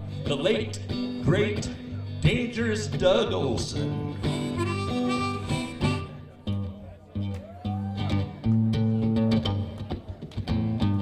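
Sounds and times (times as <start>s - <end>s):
drums keeping a beat: 0.0s - 7.5s
electric bass guitar solo: 0.0s - 11.0s.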